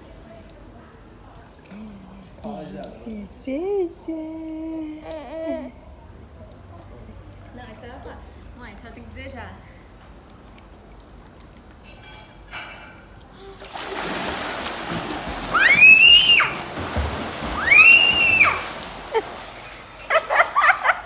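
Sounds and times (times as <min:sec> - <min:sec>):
water splashing and sloshing: 0:13.5 - 0:21.0.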